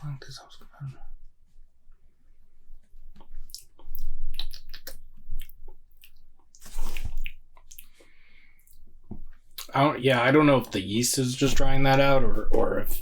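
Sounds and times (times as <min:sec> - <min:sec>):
person sipping and swallowing: 0:06.6 - 0:08.0.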